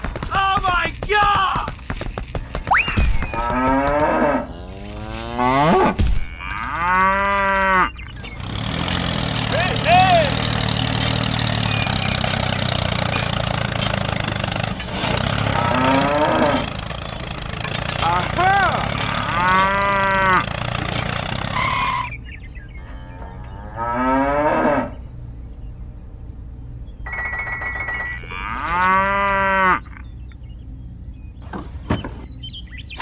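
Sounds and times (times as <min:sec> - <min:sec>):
tractor engine running: 0:00.0 - 0:05.3, 0:06.4 - 0:23.5
cows mooing: 0:03.3 - 0:22.1, 0:22.8 - 0:25.0, 0:28.1 - 0:30.1.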